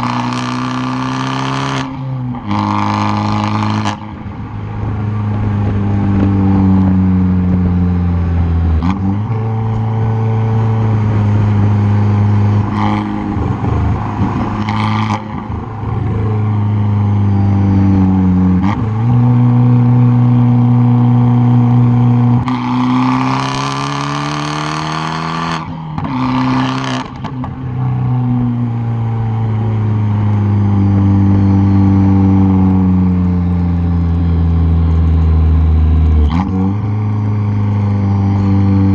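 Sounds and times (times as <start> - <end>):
car exhaust accelerating hard: 0.0 - 38.9
rushing noise: 9.1 - 19.3.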